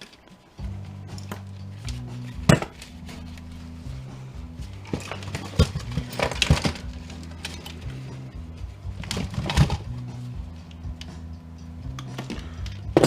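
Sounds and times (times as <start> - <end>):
background music: 0.0 - 13.0
metal parts clinking: 4.8 - 8.0.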